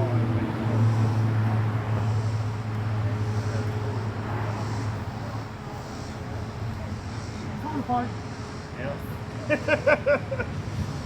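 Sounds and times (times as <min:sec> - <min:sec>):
outdoor background noise: 0:00.0 - 0:11.0
vehicle engine humming: 0:00.0 - 0:11.0.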